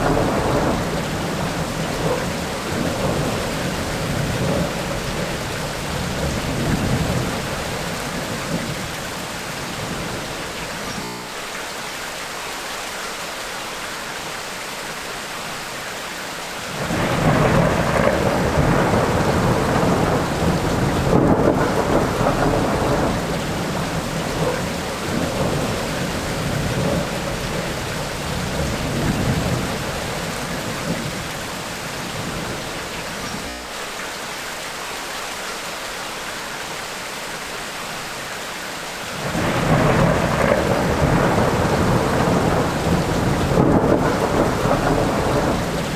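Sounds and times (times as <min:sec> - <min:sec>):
thunder rumbling: 0:00.0 - 0:11.1, 0:16.7 - 0:33.6, 0:39.1 - 0:45.9
steady rain: 0:00.0 - 0:45.9.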